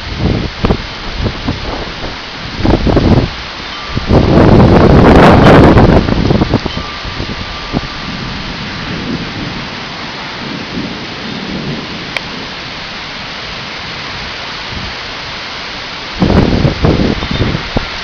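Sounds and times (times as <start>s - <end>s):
steady rain hiss: 0.0s - 18.0s
low rumbles of thunder: 7.3s - 15.0s.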